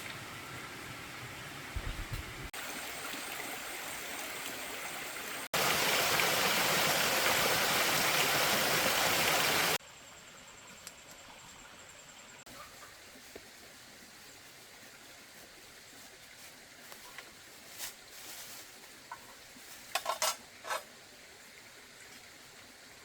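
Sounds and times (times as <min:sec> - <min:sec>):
rushing water: 0:00.0 - 0:09.8
background noise: 0:09.8 - 0:23.0.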